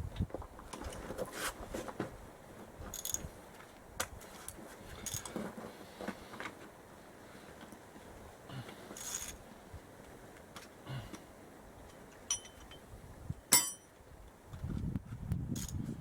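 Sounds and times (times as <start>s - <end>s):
metallic clinks of hand tools: 12.3s - 12.8s.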